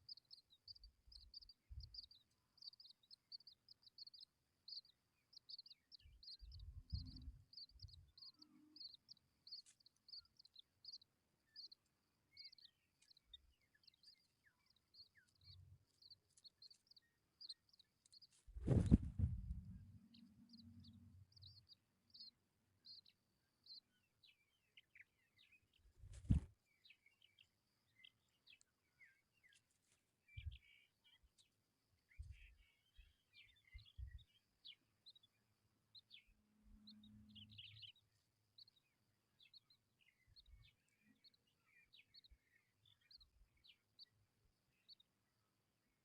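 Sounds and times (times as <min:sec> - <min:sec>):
nestlings chirping: 0:00.0 - 0:19.1
soft low bumps: 0:18.5 - 0:19.8.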